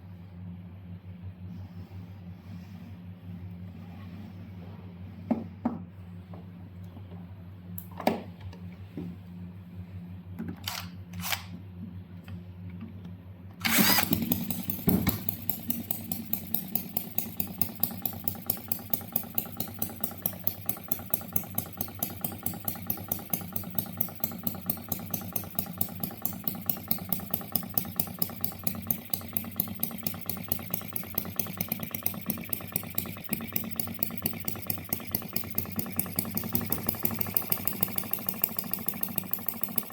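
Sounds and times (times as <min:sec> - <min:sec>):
low steady hum: 0:00.0 - 0:14.3
model engine running: 0:13.6 - 0:39.9.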